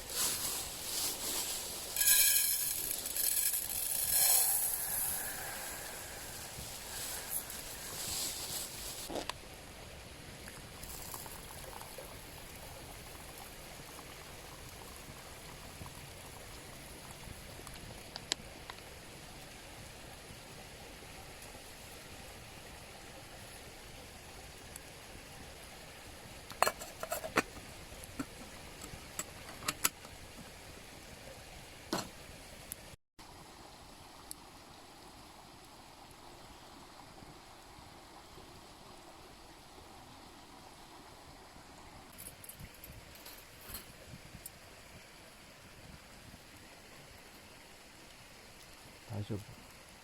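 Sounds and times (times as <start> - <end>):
mountain stream rushing: 0.0 - 13.8.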